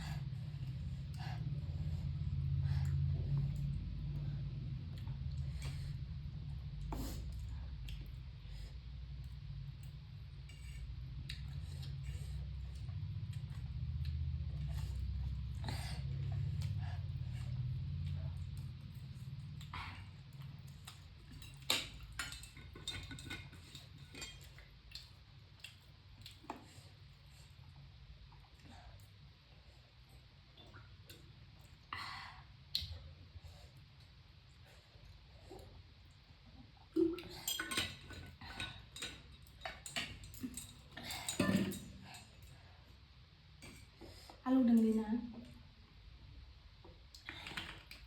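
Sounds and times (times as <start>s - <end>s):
steady low hum: 0.0s - 47.2s
cutlery clinking against dishes: 21.3s - 24.6s, 37.4s - 42.3s.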